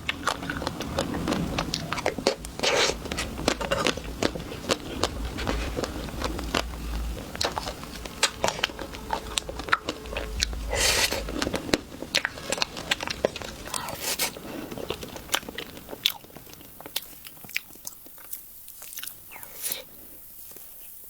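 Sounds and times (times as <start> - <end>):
crunching and chewing chocolate: 0.0 - 21.0.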